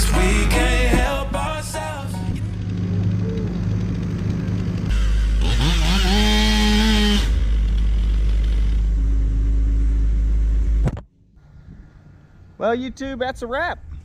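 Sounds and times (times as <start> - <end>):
chainsaw revving: 2.4 - 8.8.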